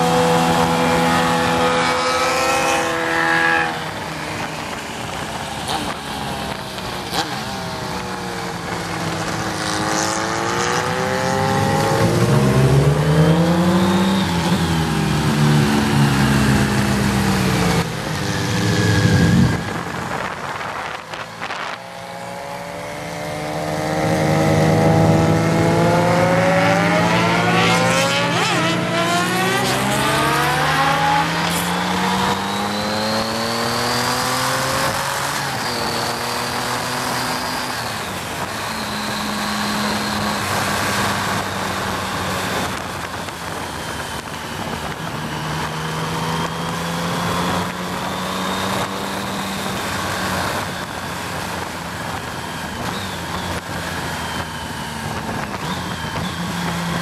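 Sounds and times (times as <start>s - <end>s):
motorcycle engine accelerating: 0.0s - 57.0s
wind rush: 8.4s - 38.7s.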